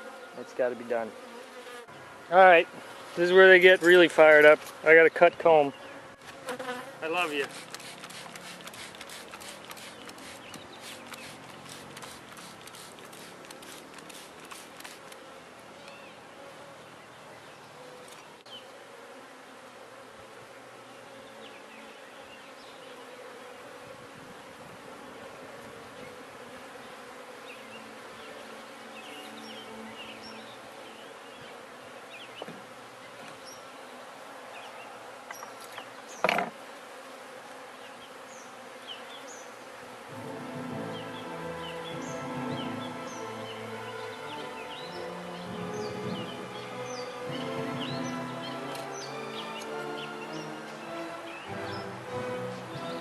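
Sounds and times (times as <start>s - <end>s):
bees buzzing: 0.0s - 53.0s
quick ticks: 7.4s - 15.2s.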